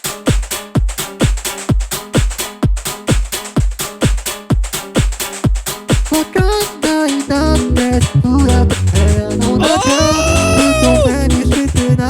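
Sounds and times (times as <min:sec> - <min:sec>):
beatbox vocal loops: 0:05.9 - 0:12.0
person singing: 0:06.1 - 0:12.0.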